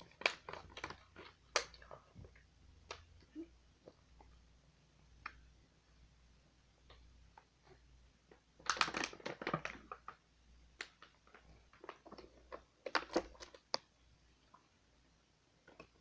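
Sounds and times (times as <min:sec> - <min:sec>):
snack bag crinkling: 0:00.0 - 0:03.0, 0:07.6 - 0:10.2, 0:10.8 - 0:13.9.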